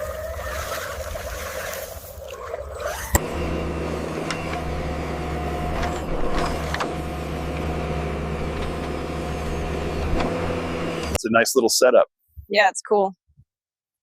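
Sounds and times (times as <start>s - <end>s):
model motor humming: 2.9s - 11.2s.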